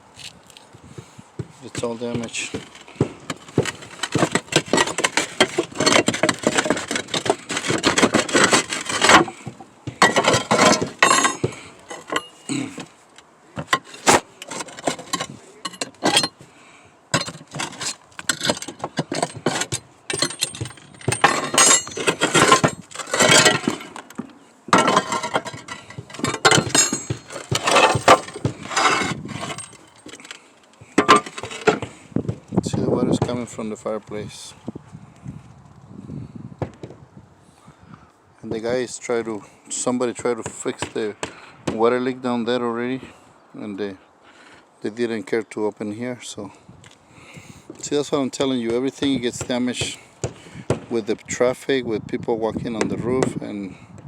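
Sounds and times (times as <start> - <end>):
roof tiles clattering: 1.5 - 16.5, 17.1 - 32.0.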